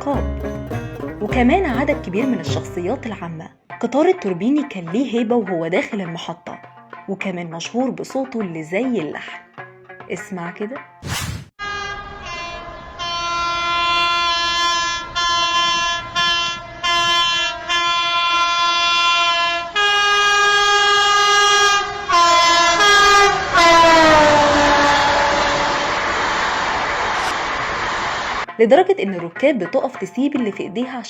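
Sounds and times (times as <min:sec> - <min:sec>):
loud rushing noise: 0:11.0 - 0:11.5, 0:25.6 - 0:28.5
train horn blasts: 0:11.6 - 0:26.6.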